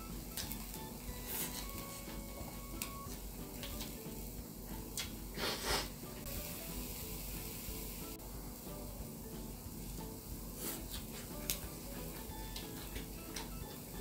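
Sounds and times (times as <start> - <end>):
soft background music: 0.0 - 14.0
person chewing: 0.3 - 3.9, 10.6 - 13.5
breathy rush of air: 5.3 - 8.6.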